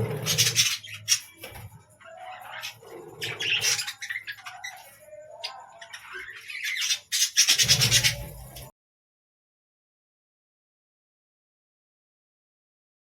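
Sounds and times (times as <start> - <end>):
budgerigar squawking and chattering: 0.0 - 1.5, 2.1 - 8.7.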